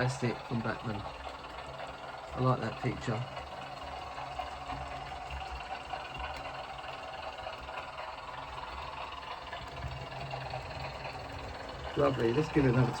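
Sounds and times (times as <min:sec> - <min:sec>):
diesel engines running: 0:05.6 - 0:13.0.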